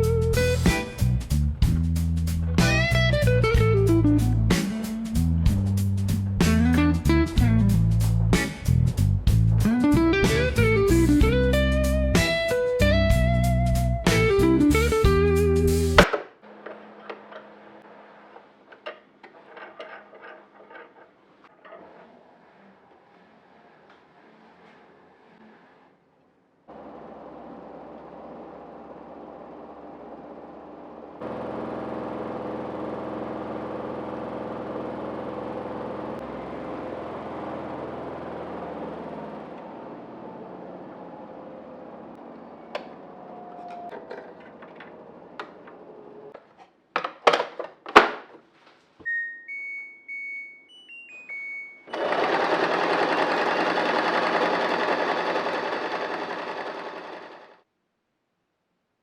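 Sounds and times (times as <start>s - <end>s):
short electronic beeps: 49.0s - 51.9s
sewing machine stitching: 51.9s - 57.6s.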